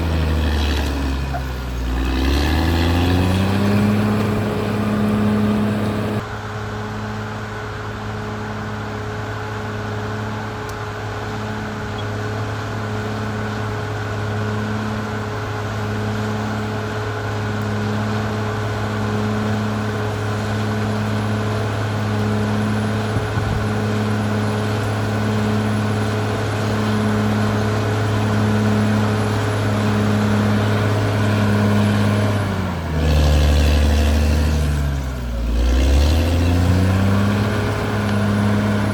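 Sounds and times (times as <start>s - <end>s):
bulldozer diesel engine pulsing: 0.0s - 38.9s.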